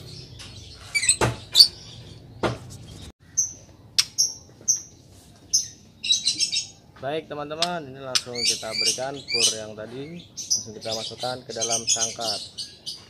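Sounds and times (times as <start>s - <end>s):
sharp knocks: 1.1s - 1.7s, 2.4s - 2.8s.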